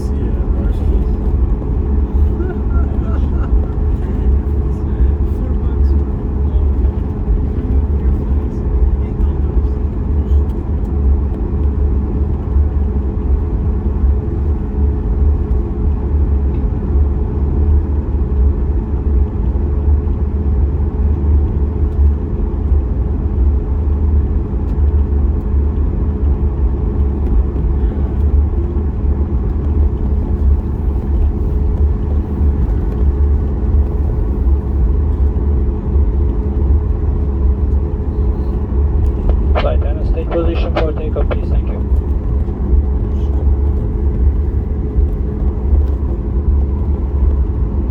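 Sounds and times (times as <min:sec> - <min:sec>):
airliner taxiing rumble: 0:00.0 - 0:47.9
faint steady hum: 0:38.0 - 0:42.5.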